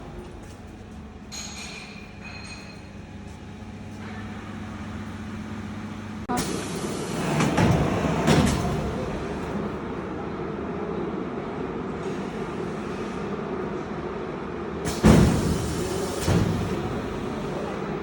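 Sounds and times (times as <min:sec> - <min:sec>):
loud noisy machine sound: 0:04.0 - 0:10.4.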